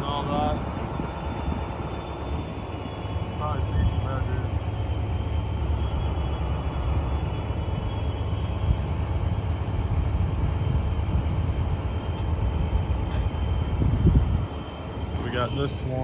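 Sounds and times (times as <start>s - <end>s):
faint high ringing tone: 0.0s - 10.1s, 14.1s - 16.0s
train passing rumble: 0.0s - 16.0s.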